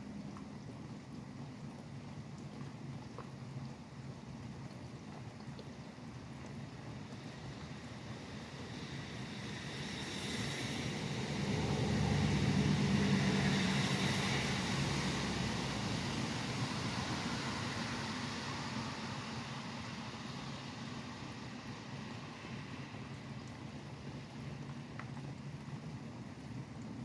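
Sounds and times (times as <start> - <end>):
rain hissing: 7.0 - 25.0
vehicle passing on wet road: 7.2 - 23.0.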